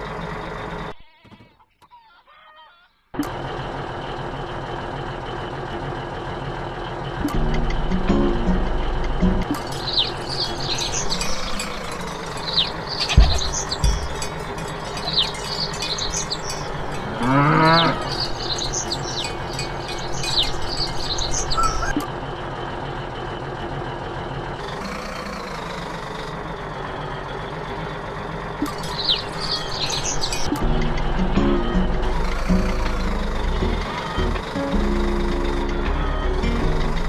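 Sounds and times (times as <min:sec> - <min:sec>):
birds chirping: 0:09.5 - 0:22.0, 0:28.6 - 0:34.4
cow mooing: 0:11.5 - 0:20.0.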